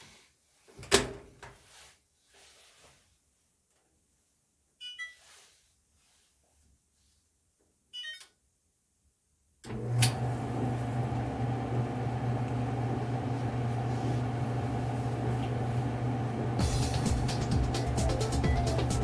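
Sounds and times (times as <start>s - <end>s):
dryer motor humming: 9.7s - 19.0s.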